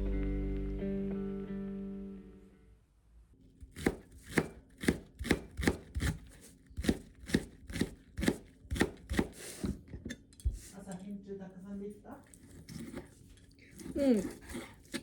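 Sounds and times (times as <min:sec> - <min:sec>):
knife chopping on cutting board: 0:03.6 - 0:09.8, 0:12.6 - 0:15.0.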